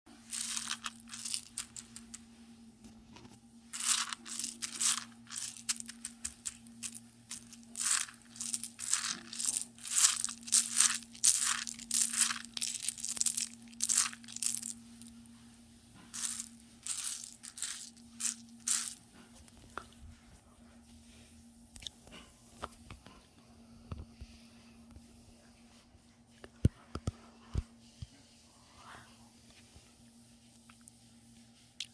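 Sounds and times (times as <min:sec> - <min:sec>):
popcorn popping: 0:00.1 - 0:02.2, 0:02.9 - 0:15.1.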